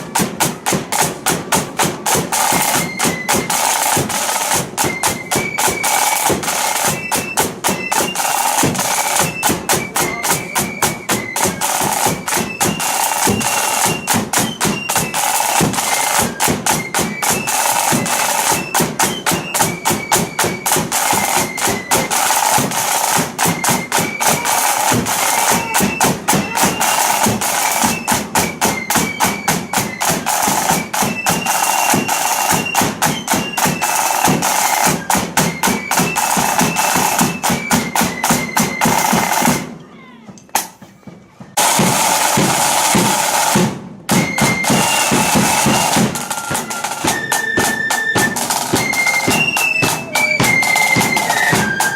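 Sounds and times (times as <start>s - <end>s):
massed flutes playing a march: 0.0s - 39.8s, 41.6s - 51.9s
side drum rolls: 0.0s - 39.8s, 40.5s - 51.9s.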